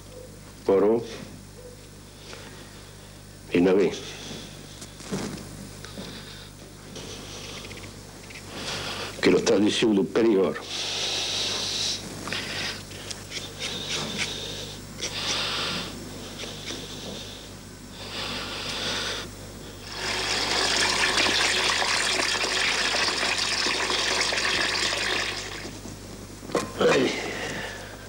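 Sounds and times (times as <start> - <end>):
water pouring: 19.9 - 25.8.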